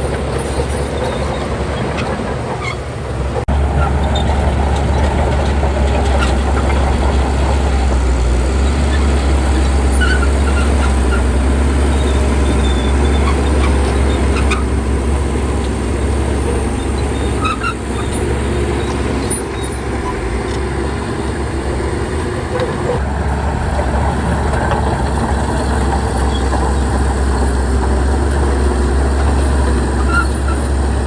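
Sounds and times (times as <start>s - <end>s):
heavy diesel engine running: 0.0s - 31.0s
short high squeaks: 16.8s - 20.2s.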